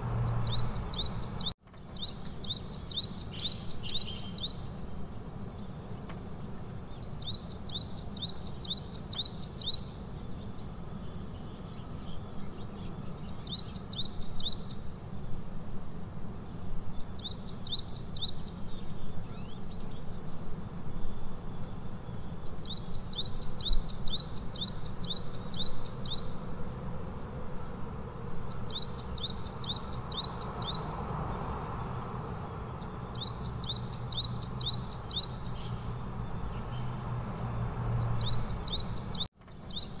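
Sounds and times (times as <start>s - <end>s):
bird singing high chirps: 0.1s - 4.8s, 6.9s - 14.9s, 16.9s - 20.4s, 21.0s - 26.4s, 28.4s - 30.9s, 32.7s - 37.0s, 38.0s - 40.0s.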